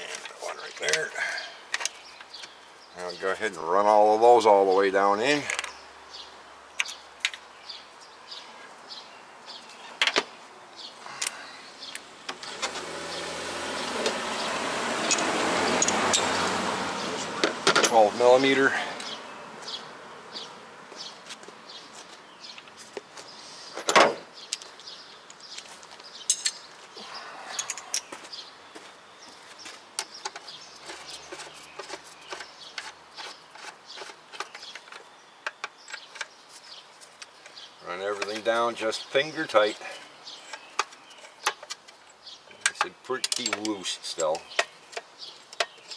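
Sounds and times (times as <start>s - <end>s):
hand tools clicking and tapping: 15.0s - 16.4s, 24.5s - 26.6s, 29.7s - 36.4s, 37.0s - 38.6s, 39.8s - 45.9s
metallic clicks of bolts and tools: 26.3s - 26.6s, 42.6s - 45.9s.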